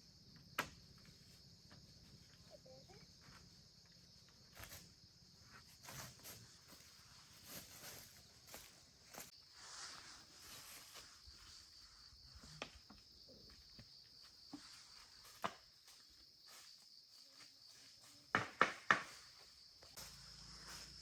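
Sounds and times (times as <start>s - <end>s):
high insect trill: 0.0s - 21.0s.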